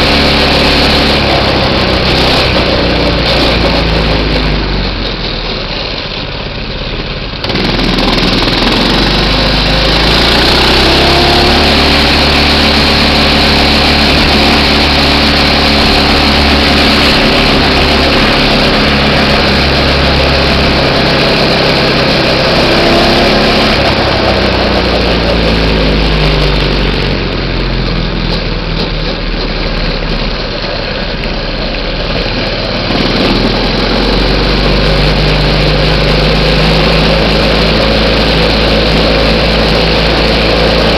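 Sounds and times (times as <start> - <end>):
minibike engine revving: 0.0 - 40.9.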